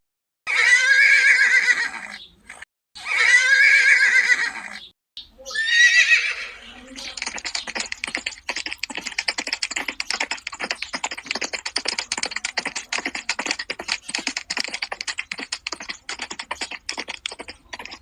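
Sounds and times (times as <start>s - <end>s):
rapid clicking and tapping: 7.0s - 18.0s.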